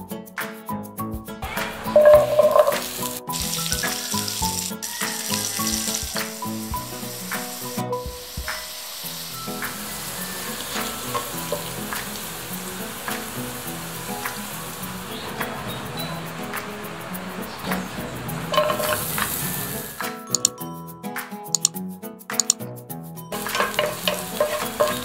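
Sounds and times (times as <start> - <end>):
light background music: 0.0 - 25.0
carrots sizzling in hot oil: 2.0 - 15.4, 18.5 - 20.0, 23.3 - 25.0.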